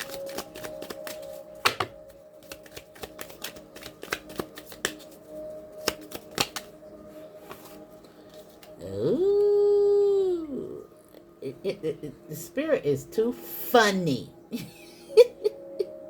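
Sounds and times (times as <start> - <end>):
cards being shuffled: 0.0 - 6.8, 7.4 - 8.8.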